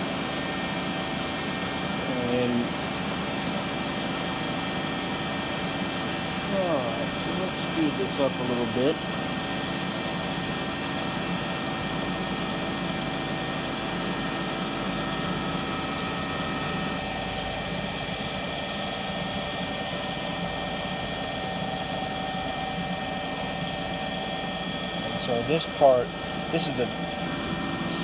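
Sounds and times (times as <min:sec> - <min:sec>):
lathe machine hum: 0:22.8 - 0:28.0.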